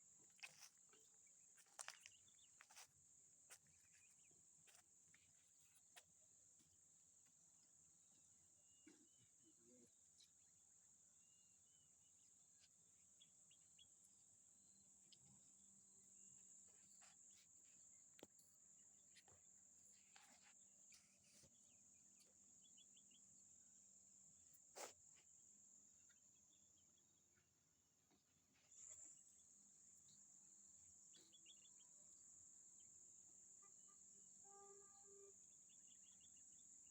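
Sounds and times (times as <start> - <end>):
crickets chirping: 28.7 - 36.9.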